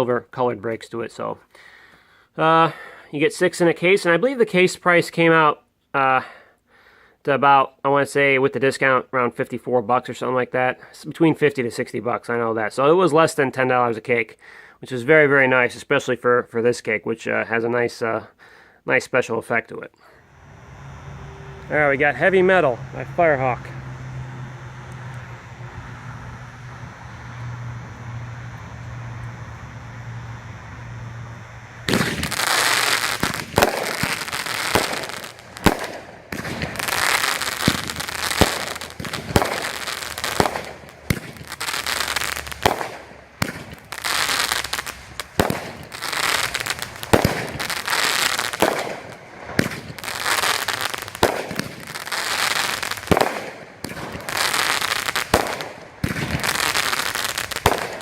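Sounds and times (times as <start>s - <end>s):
fireworks firing and crackling: 31.8s - 58.0s.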